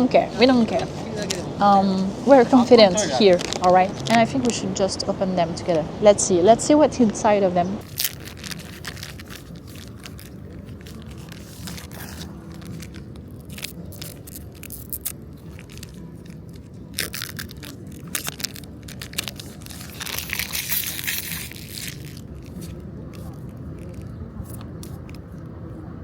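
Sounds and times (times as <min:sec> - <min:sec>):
low background hum: 0:00.0 - 0:26.0
foil packs crinkling and tearing: 0:03.2 - 0:04.2, 0:07.8 - 0:25.2.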